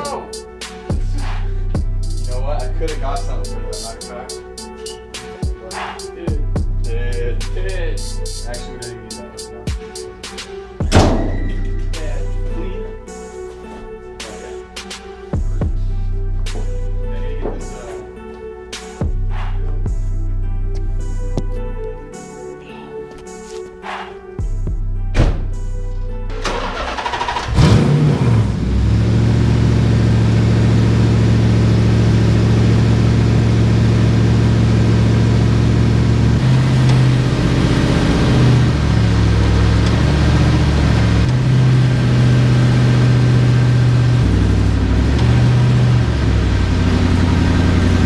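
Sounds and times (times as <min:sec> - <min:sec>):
car engine starting and idling: 0:25.4 - 0:48.0.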